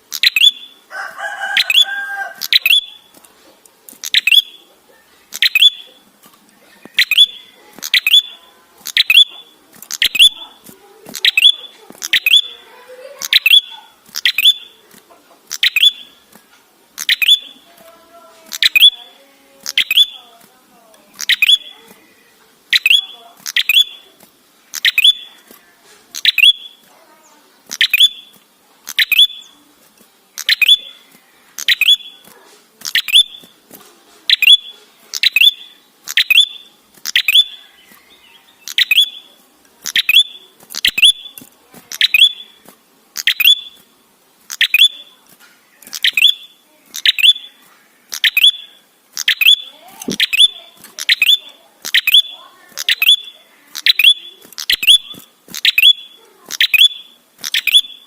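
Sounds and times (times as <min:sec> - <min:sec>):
tailorbird calling: 0:06.9 - 0:14.8, 0:18.5 - 0:20.3, 0:21.2 - 0:22.0, 0:45.9 - 0:58.0.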